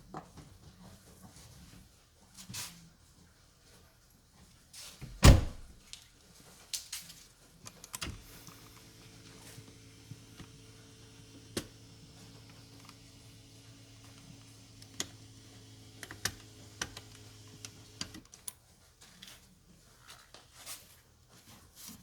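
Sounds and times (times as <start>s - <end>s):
heavy thunk: 5.2s - 5.8s.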